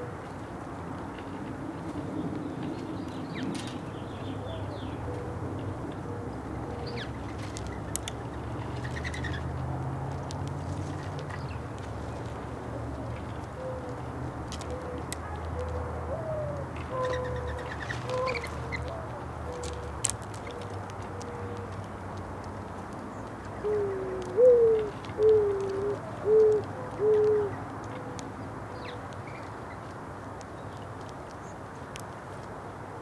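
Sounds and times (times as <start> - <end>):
mourning dove cooing: 4.3 - 7.2, 13.2 - 21.8, 23.6 - 29.0
small ticks: 6.9 - 15.8, 17.6 - 32.7.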